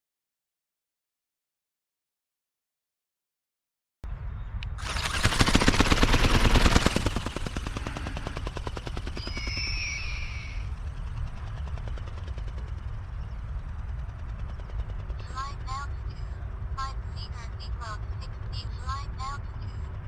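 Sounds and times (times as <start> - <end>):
toy flapping wings buzzing whir: 4.7 - 11.2
high squeal: 9.1 - 10.8.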